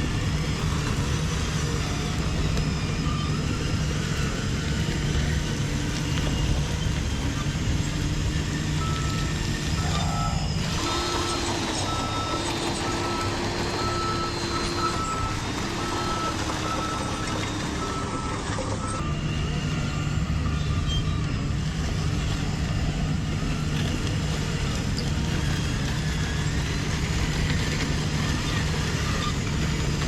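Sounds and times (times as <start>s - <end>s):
simulated diesel engine drone: 0.0s - 30.0s
reverse warning beeper: 8.7s - 21.1s.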